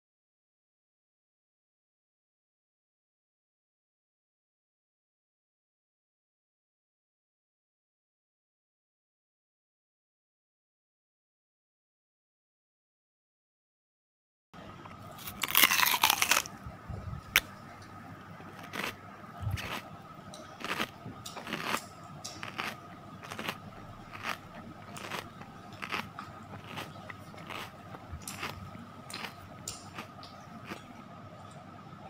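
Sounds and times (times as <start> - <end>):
soft chewing and mouth sounds: 14.8 - 31.9
crunchy bite: 15.2 - 16.6, 18.5 - 19.9, 20.6 - 30.8.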